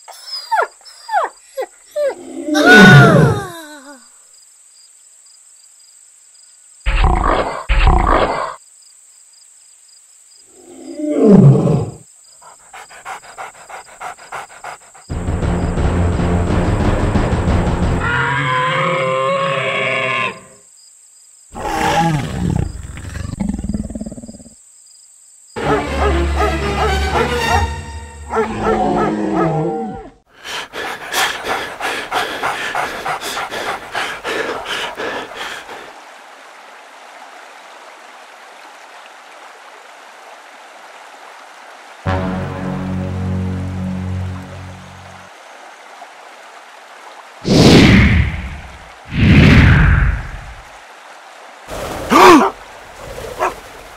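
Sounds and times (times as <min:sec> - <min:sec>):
lion growls: 0:06.9 - 0:08.6, 0:21.6 - 0:24.6, 0:28.3 - 0:35.8
lion roar: 0:06.9 - 0:08.6, 0:21.6 - 0:24.6, 0:28.3 - 0:35.9
dog panting: 0:12.4 - 0:15.1, 0:30.4 - 0:35.8.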